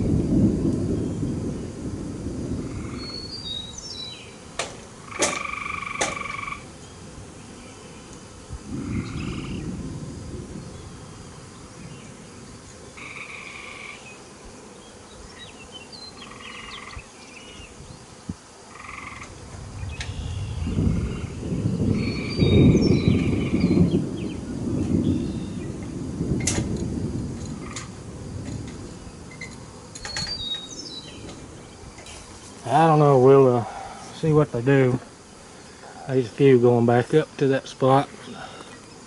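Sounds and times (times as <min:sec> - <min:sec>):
low thunder rumbling: 0:00.0 - 0:03.8, 0:08.5 - 0:12.6, 0:19.2 - 0:32.0
wet outdoor background: 0:00.0 - 0:39.0
frogs trilling: 0:01.0 - 0:04.4, 0:05.0 - 0:06.7, 0:08.7 - 0:12.0, 0:13.0 - 0:14.2, 0:15.4 - 0:17.5, 0:18.7 - 0:26.3, 0:27.5 - 0:28.1.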